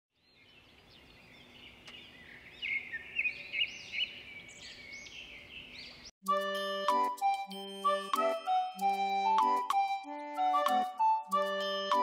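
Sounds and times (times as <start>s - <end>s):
birds chirping and calling: 0.2s - 6.1s.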